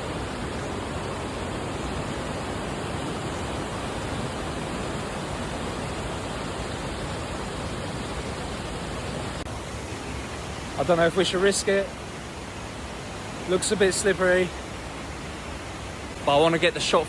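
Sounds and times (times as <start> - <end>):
water roaring over rocks: 0.0 - 17.0.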